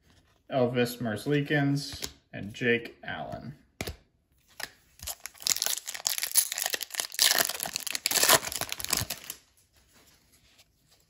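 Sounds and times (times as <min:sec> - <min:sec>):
card pack wrapper tearing: 0:05.0 - 0:09.5.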